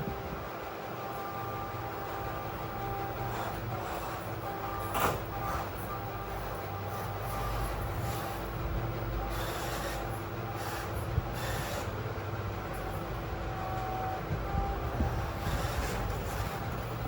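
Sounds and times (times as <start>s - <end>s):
small electric motors whirring: 9.2s - 12.0s, 14.7s - 17.0s.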